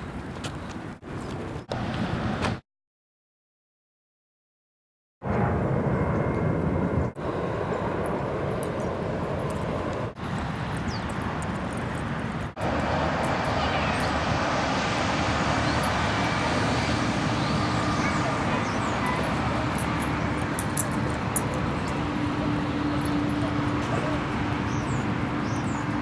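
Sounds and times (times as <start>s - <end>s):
outdoor rumble and hiss: 5.3s - 26.0s.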